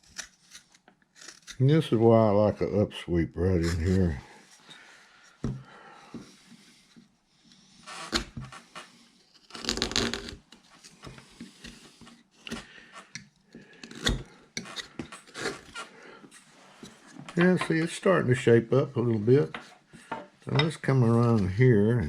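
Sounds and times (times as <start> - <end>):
knife shaving wood: 0.0 - 2.5, 3.5 - 17.9.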